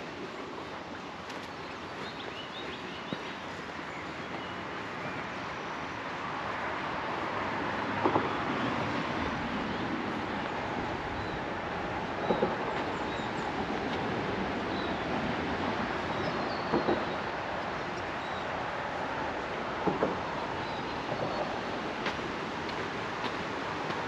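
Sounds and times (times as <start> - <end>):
road traffic rumbling past: 4.8 - 24.0.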